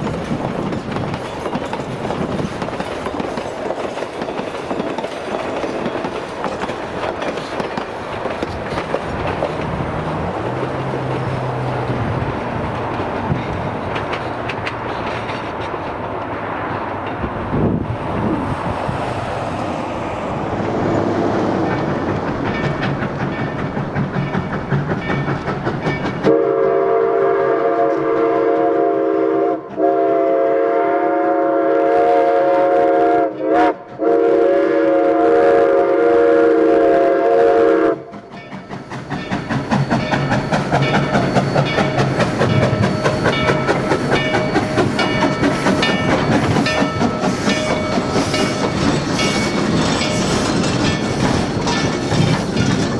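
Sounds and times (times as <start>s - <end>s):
train wheels clattering: 0.0s - 26.5s, 37.8s - 52.9s
steam whistle blast: 26.2s - 38.1s.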